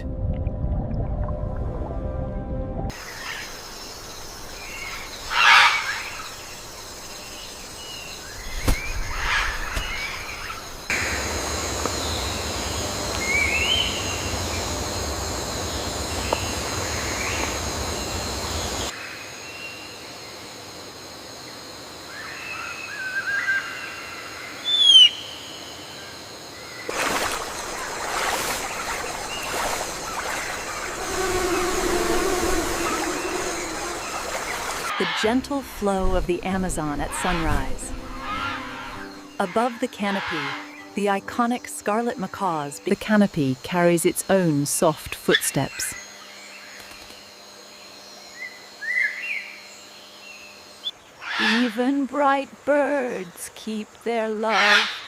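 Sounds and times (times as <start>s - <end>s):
insect chorus: 2.9s - 55.0s
bird calls and chirps: 24.6s - 25.6s
even hissing noise: 26.9s - 34.9s.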